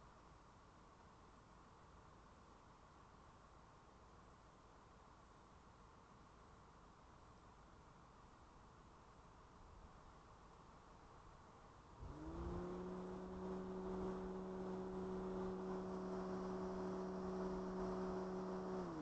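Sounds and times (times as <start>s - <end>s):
car engine starting and idling: 12.0s - 19.0s.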